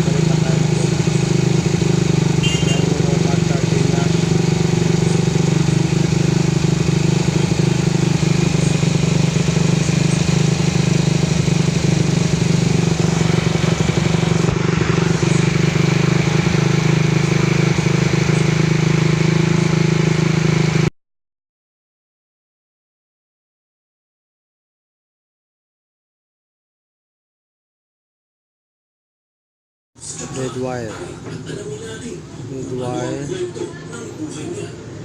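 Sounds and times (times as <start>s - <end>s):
motorcycle engine idling: 0.0s - 20.9s.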